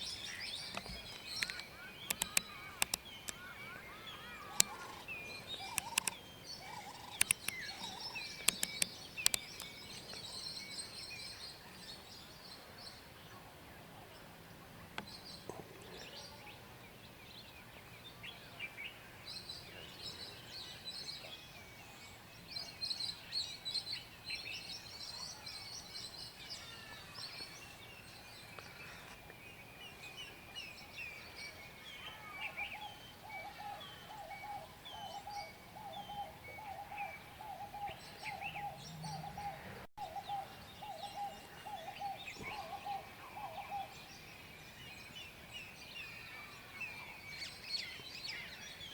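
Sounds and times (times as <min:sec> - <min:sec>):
birds chirping and whistling: 0:00.0 - 0:11.4, 0:26.5 - 0:46.1
lower bird call repeating rapidly: 0:01.4 - 0:09.6.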